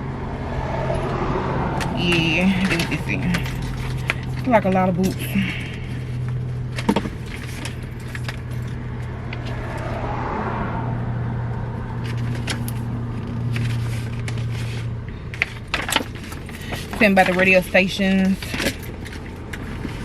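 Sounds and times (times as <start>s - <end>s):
paper booklets rustling: 12.1s - 20.0s.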